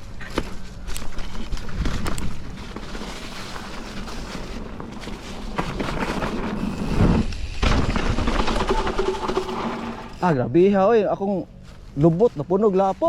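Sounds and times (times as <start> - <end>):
tyre and wind rumble: 0.0 - 10.6
bike thumping over bumps: 1.5 - 10.2.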